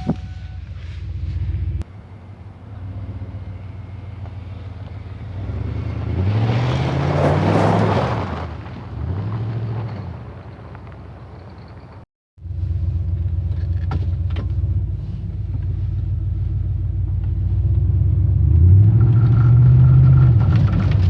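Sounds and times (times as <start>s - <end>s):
pickup engine revving: 1.5s - 12.0s.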